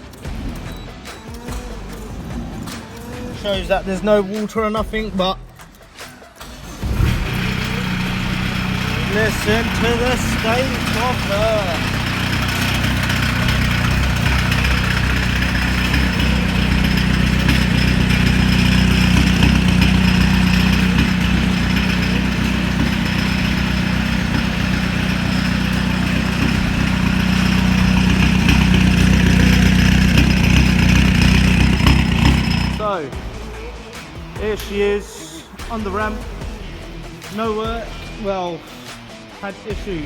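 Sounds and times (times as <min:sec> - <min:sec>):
diesel engine idling: 0:06.4 - 0:33.8.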